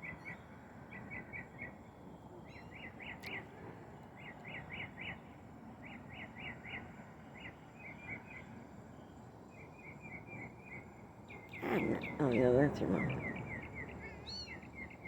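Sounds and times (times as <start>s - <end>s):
outdoor background hiss: 0.0s - 15.0s
bird chirping: 9.8s - 15.0s.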